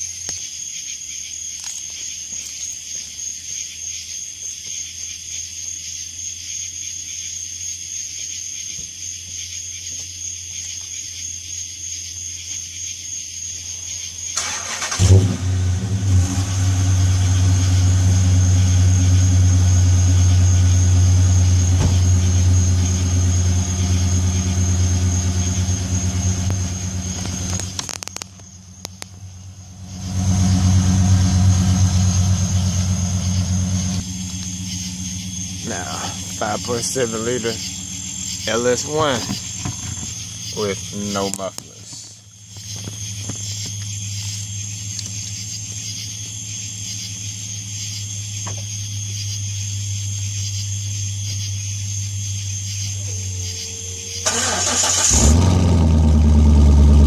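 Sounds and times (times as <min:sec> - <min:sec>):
engine cranking and firing: 0:14.3 - 0:45.4, 0:53.5 - 0:57.0
loud engine idle: 0:14.4 - 0:27.9, 0:28.6 - 0:41.0, 0:53.0 - 0:57.0.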